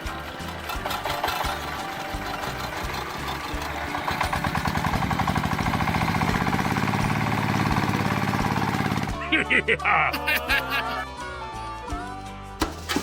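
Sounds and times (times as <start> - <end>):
small engine pulsing: 0.0 - 9.2.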